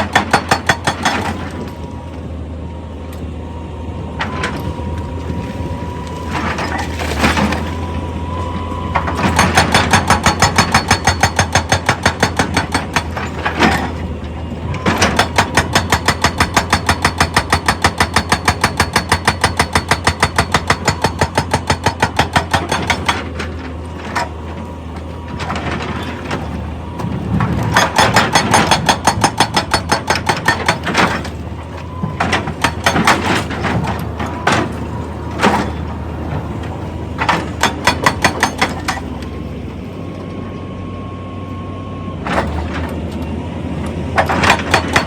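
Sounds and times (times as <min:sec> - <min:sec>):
hydraulic rock breaker hammering: 0:00.0 - 0:01.8, 0:09.0 - 0:14.1, 0:14.7 - 0:36.5, 0:37.2 - 0:39.3, 0:44.1 - 0:45.0
excavator engine hum: 0:00.0 - 0:45.0.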